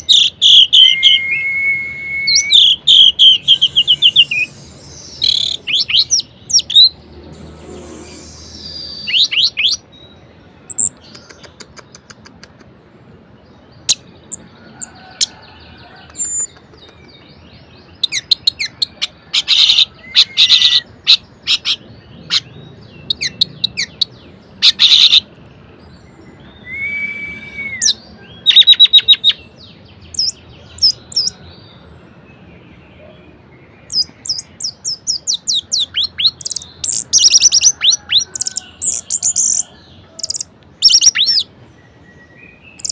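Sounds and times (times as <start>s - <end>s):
thrush singing: 0.0s - 9.8s.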